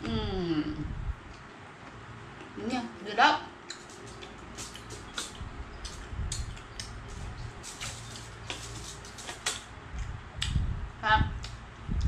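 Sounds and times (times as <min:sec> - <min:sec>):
people chewing: 0:03.6 - 0:09.7.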